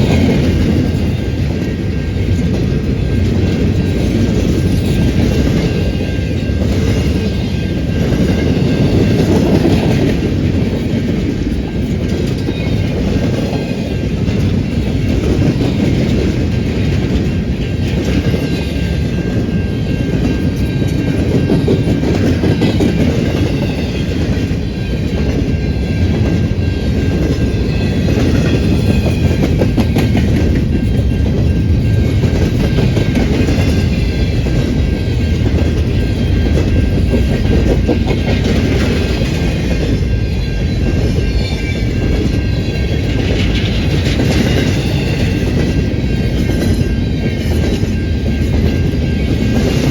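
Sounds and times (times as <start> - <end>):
train wheels clattering: 0.0 - 49.9.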